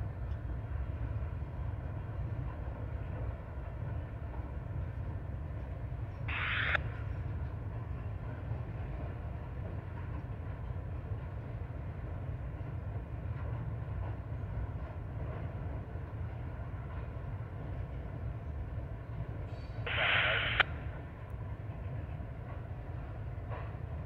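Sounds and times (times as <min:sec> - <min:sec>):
train rumbling across bridge: 0:00.0 - 0:24.0
high-pitched noise: 0:19.9 - 0:20.6.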